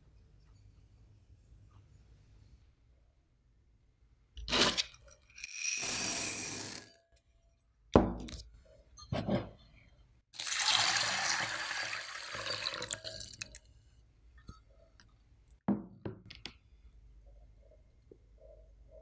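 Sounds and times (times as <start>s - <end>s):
water pouring into a bowl: 10.4s - 13.6s.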